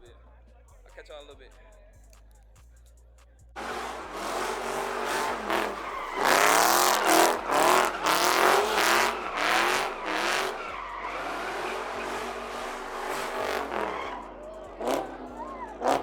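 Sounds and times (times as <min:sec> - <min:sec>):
car engine revving: 0:03.6 - 0:16.0
tyres squealing: 0:03.6 - 0:16.0.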